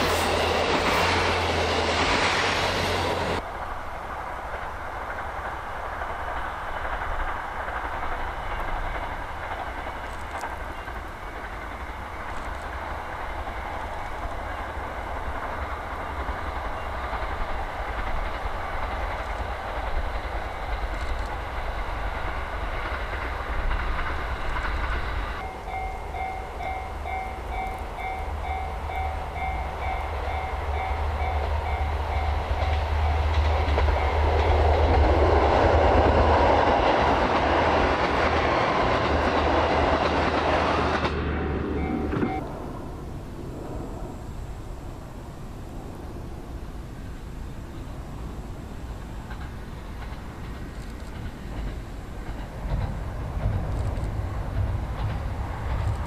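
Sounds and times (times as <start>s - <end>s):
train rumbling on rails: 0.0s - 56.0s.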